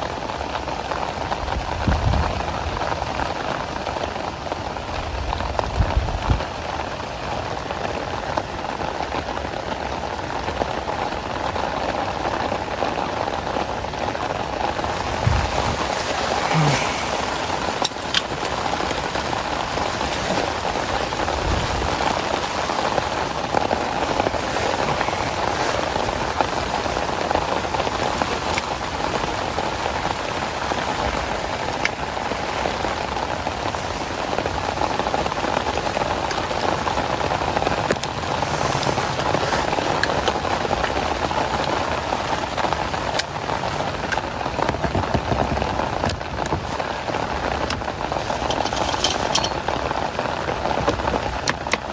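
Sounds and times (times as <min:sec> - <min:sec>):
heavy rain falling: 0:00.0 - 0:51.9.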